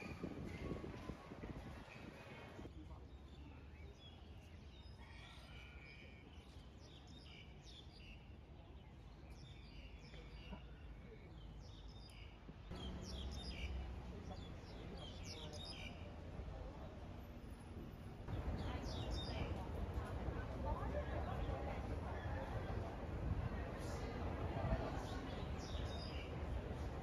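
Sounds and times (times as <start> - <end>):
birds chirping: 9.4 - 16.1.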